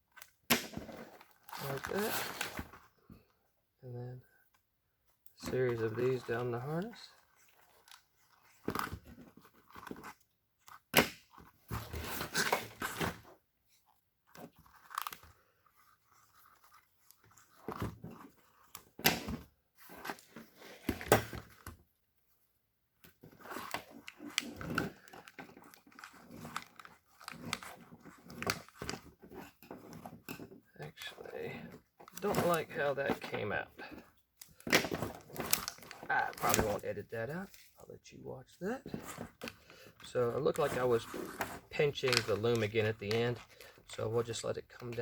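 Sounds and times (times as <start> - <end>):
plastic crinkling and tearing: 32.0 - 33.4, 34.4 - 36.8, 40.4 - 43.8.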